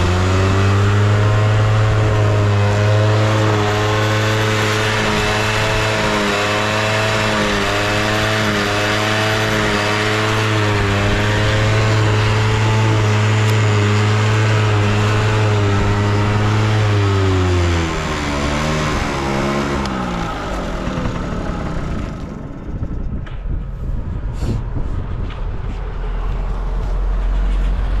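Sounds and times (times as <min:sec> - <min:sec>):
scooter engine running: 0:00.0 - 0:24.3
low rumble: 0:10.8 - 0:28.0.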